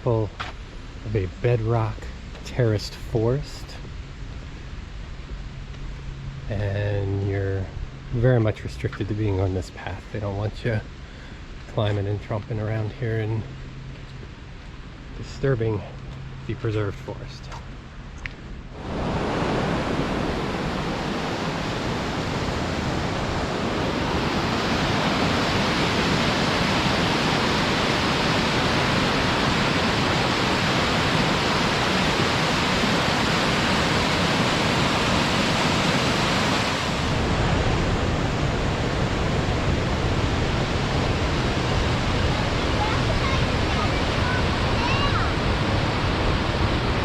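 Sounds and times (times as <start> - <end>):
river rapids roaring: 18.7 - 47.0.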